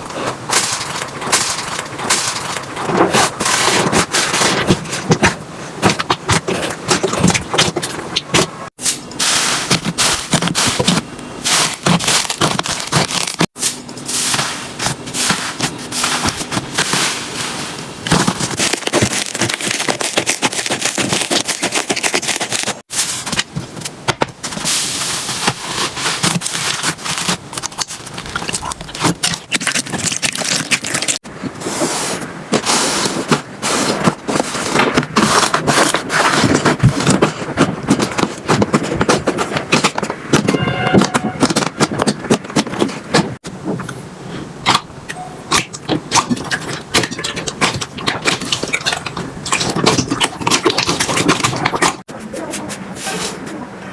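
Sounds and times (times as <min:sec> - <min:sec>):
slime squelching and crackling: 0:00.0 - 0:31.4, 0:45.5 - 0:53.7.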